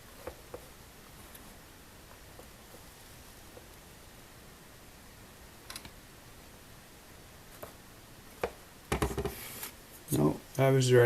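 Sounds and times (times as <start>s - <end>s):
low steady hiss: 0.0s - 11.0s.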